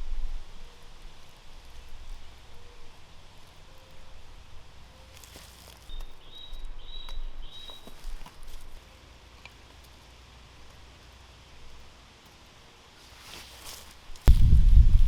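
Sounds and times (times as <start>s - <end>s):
wind rumbling on microphone: 0.0s - 2.5s, 14.1s - 15.0s
bird chirping: 2.1s - 8.6s.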